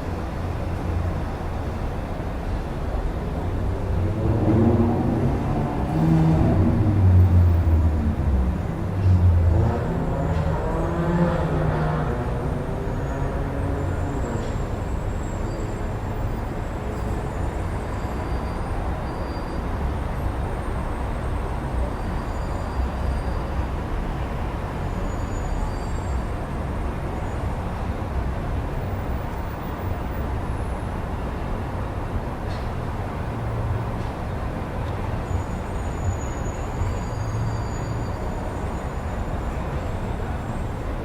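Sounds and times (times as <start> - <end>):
city road traffic rumble: 0.0 - 41.0.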